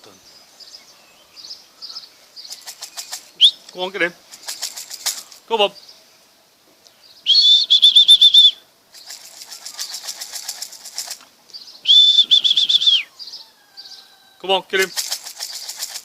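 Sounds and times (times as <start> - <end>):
pigeon wings flapping: 2.5 - 3.5, 4.3 - 5.5, 8.9 - 11.2, 14.8 - 16.0
warbling high-pitched whistles: 7.3 - 11.0, 11.8 - 13.1.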